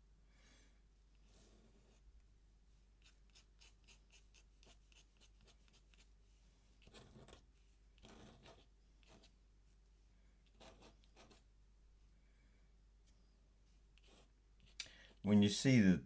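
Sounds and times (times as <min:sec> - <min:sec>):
pen nib scratching on paper: 0:03.0 - 0:06.1, 0:06.8 - 0:09.4, 0:10.4 - 0:11.5, 0:14.0 - 0:15.2.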